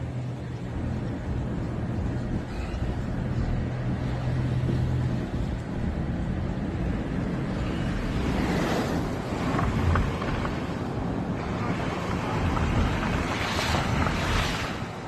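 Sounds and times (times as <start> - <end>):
constant rushing noise: 0.0 - 15.0
vehicle engine humming: 0.0 - 15.0.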